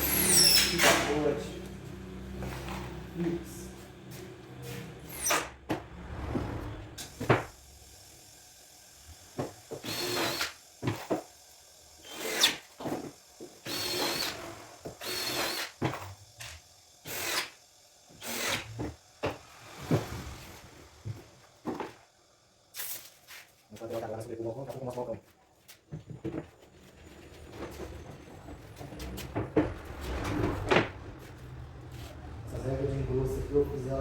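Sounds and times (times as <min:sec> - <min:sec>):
cordless drill driving screws: 0:09.8 - 0:10.6, 0:12.0 - 0:12.7, 0:13.6 - 0:16.0, 0:17.0 - 0:17.6, 0:18.2 - 0:18.7.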